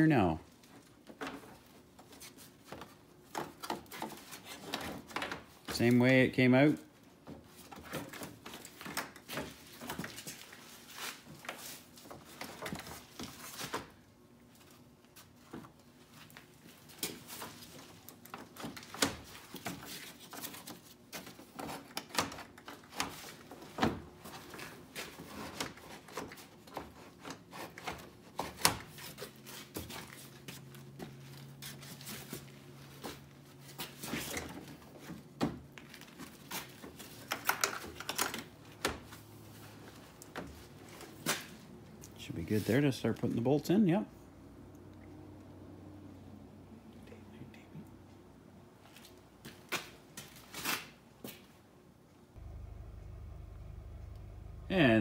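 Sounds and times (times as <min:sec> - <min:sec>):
steady low hum: 0:52.4 - 0:55.0.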